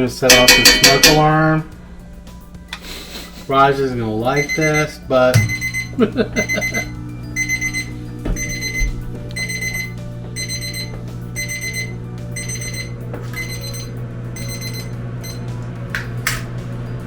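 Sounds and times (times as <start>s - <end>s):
smoke alarm beeping: 4.2s - 15.5s
low hum: 5.4s - 17.0s.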